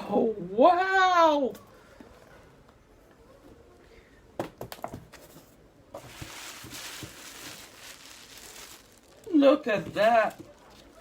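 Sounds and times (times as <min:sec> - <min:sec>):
packaging rustling: 0:06.0 - 0:11.0.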